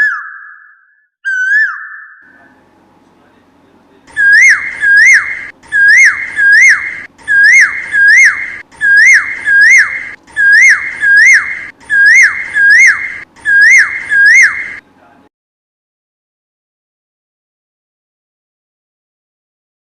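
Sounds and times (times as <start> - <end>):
bird whistled call: 0.0 - 2.2, 4.1 - 14.8.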